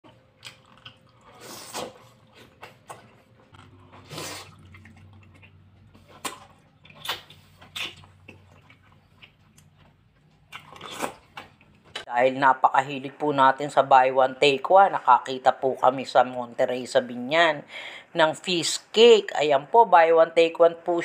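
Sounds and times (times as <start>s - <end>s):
man biting and chewing: 0.0s - 12.0s
wet mouth sounds: 0.4s - 9.8s
slurping: 0.6s - 2.6s, 3.5s - 9.6s.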